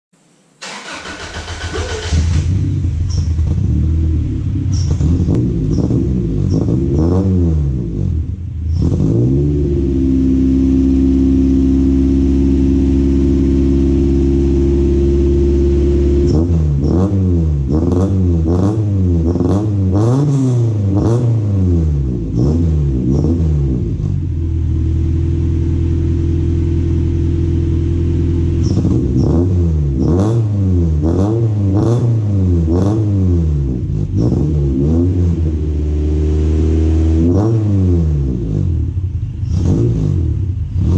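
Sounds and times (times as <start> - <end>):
car engine revving: 0.6 - 40.9.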